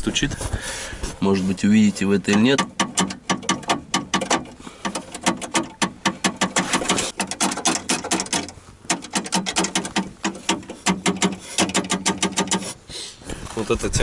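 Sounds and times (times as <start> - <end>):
metal rod rattling against door: 2.2 - 12.8.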